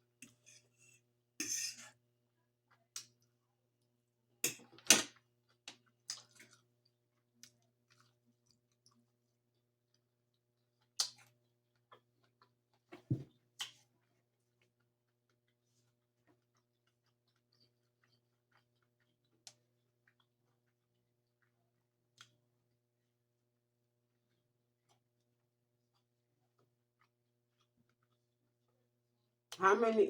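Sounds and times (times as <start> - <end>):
person chewing food: 5.5 - 22.5, 24.1 - 28.7.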